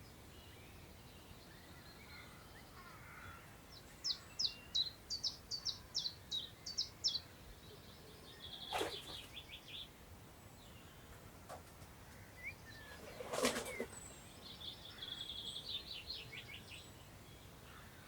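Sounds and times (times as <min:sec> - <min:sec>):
songbird singing: 0:00.0 - 0:18.0
wind in long grass: 0:08.3 - 0:10.9.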